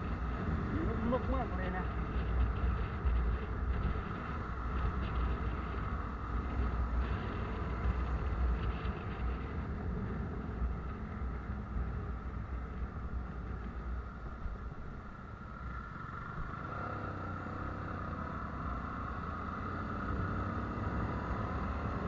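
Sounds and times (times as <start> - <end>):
wind buffeting microphone: 0.0 - 16.6
vehicle rumble: 0.0 - 22.0.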